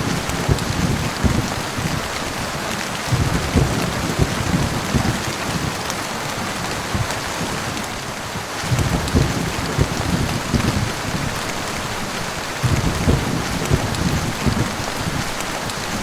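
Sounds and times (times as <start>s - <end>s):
heavy rain falling: 0.0s - 16.0s
low rumble of thunder: 0.0s - 16.0s.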